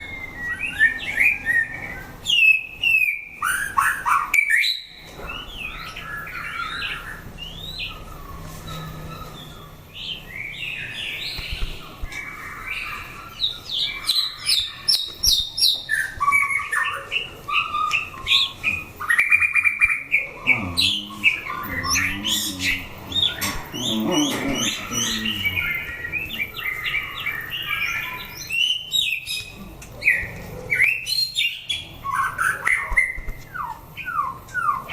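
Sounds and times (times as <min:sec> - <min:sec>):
bird singing whistled phrases: 0:00.0 - 0:03.8.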